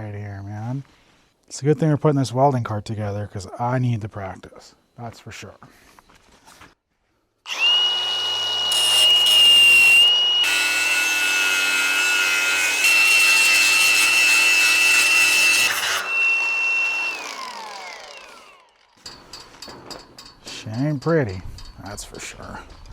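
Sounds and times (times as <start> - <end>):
angle grinder grinding steel: 7.5 - 19.2.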